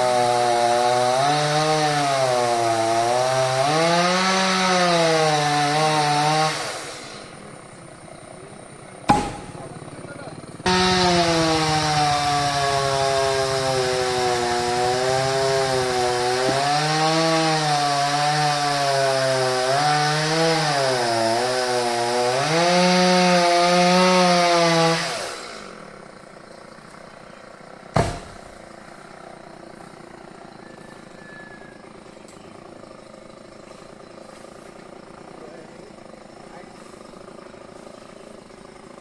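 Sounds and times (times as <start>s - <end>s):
chainsaw cutting wood: 0.0s - 7.5s, 9.1s - 9.9s, 10.6s - 30.6s, 31.8s - 39.0s
loud sharp knock: 9.1s - 9.7s, 28.0s - 28.5s.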